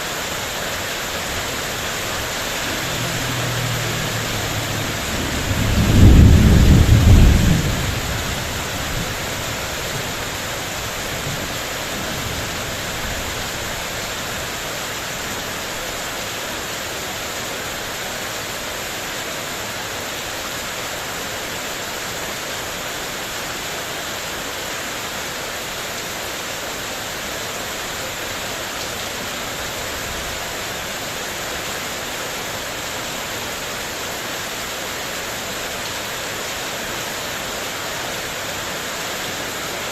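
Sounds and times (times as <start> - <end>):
heavy rain: 0.0 - 39.9
thunder rumbling: 1.2 - 13.7.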